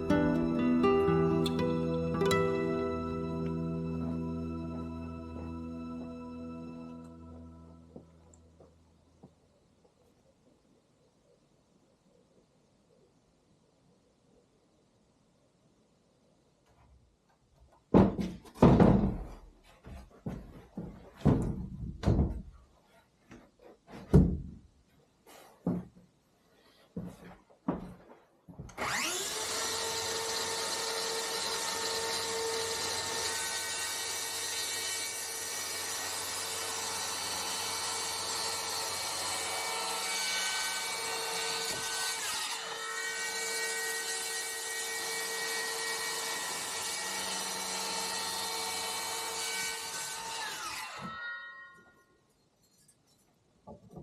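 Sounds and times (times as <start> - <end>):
knocks: 17.9 - 19.4, 20.3 - 22.6
power tool running: 28.8 - 51.2.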